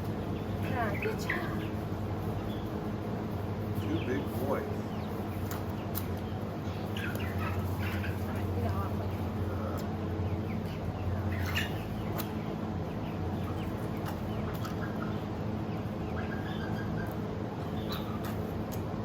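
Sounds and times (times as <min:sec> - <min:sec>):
steady low hum: 0:00.0 - 0:19.0
goat kids squeaky calls: 0:09.0 - 0:12.4, 0:13.0 - 0:18.6.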